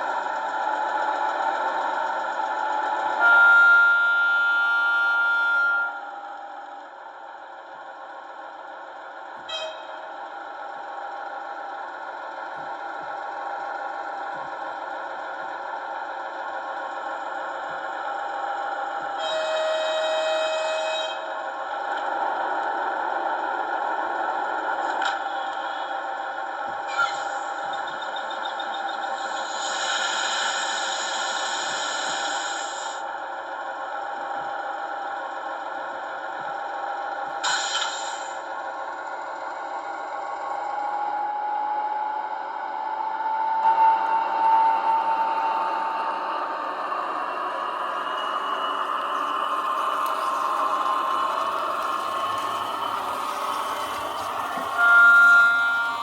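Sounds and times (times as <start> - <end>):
diesel engine sound from small speaker: 0.0 - 56.0
short tone: 54.7 - 56.0.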